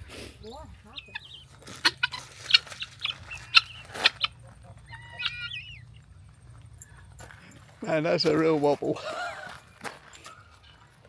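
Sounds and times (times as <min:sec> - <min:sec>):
bird chirping and warbling: 0:00.4 - 0:07.0.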